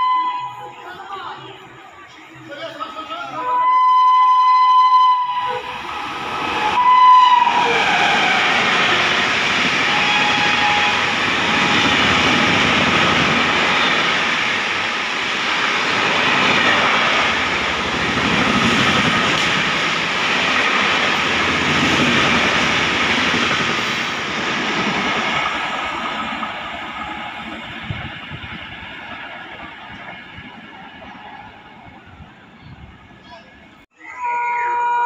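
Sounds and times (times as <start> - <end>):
train passing at high speed: 0.9 - 33.9
train horn blast: 3.5 - 6.0, 6.7 - 9.1, 9.8 - 12.5, 34.2 - 35.0.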